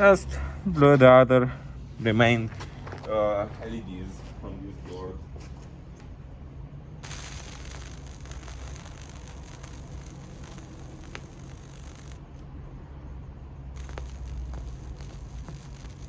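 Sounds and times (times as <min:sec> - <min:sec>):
transformer humming: 0:06.7 - 0:16.0
electric arc crackling and snapping: 0:07.0 - 0:12.2, 0:13.8 - 0:16.0.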